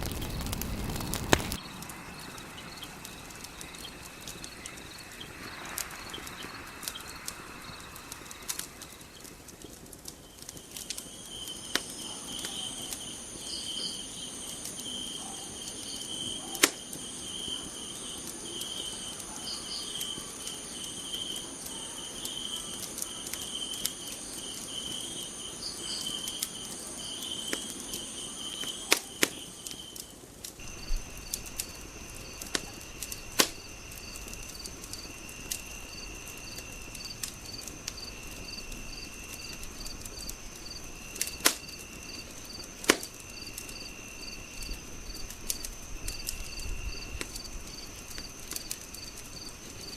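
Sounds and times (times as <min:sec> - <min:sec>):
crickets chirping: 0:00.0 - 0:49.9
wood fire crackling: 0:00.0 - 0:49.9.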